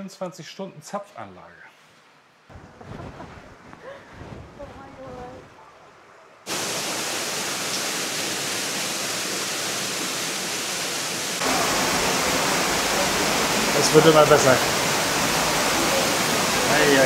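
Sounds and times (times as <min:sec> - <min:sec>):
waterfall rushing: 0:06.5 - 0:17.0.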